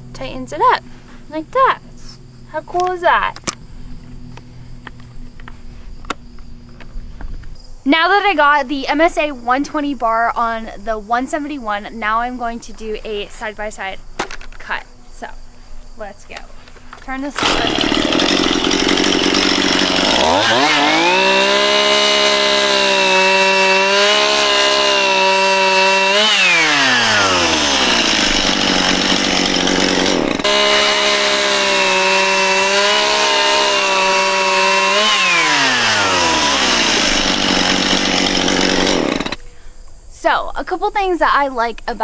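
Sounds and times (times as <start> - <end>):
chainsaw cutting wood: 17.3 - 39.4.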